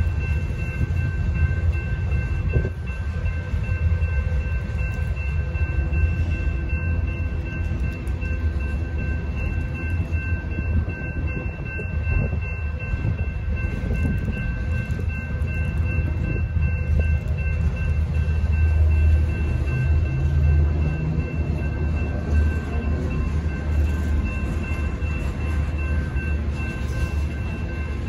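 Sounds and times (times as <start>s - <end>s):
crossing signal bell ringing: 0.0s - 28.0s
freight wheels rumbling on rail: 0.0s - 28.0s.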